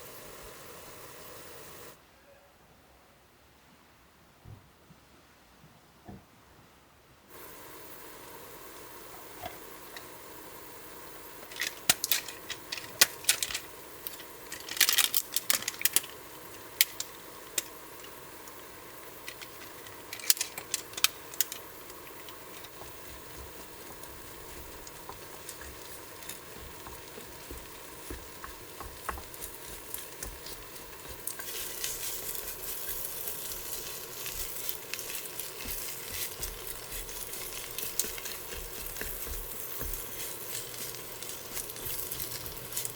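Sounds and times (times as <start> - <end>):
food frying in a pan: 0.0 - 2.0, 7.3 - 42.9.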